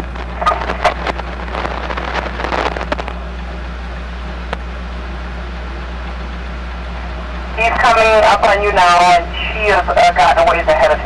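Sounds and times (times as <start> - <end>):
rapid crackling and clicking: 0.0 - 4.7
car interior low hum: 0.0 - 11.0.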